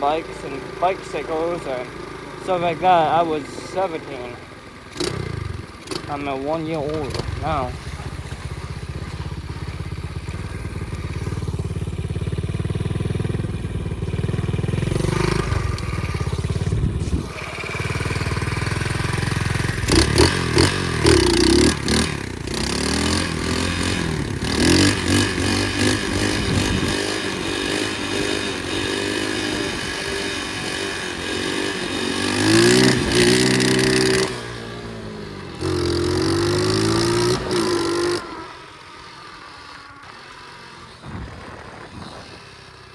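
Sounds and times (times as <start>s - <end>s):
pit bike engine revving: 0.0s - 42.9s.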